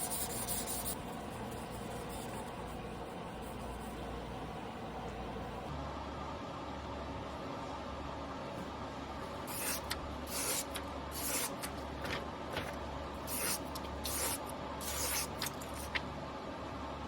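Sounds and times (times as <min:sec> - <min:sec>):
steady low hum: 0:00.0 - 0:05.8, 0:08.4 - 0:17.0
blade scraping on whetstone: 0:09.5 - 0:11.7, 0:13.3 - 0:15.8.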